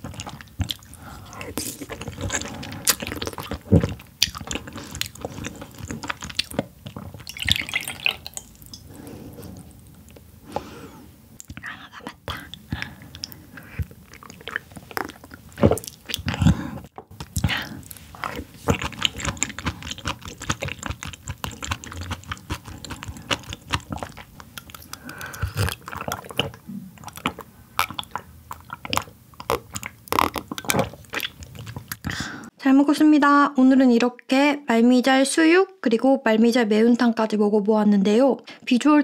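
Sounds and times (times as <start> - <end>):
chewing and biting food: 0.0 - 8.8, 12.3 - 32.3
mouth clicks: 17.2 - 32.3.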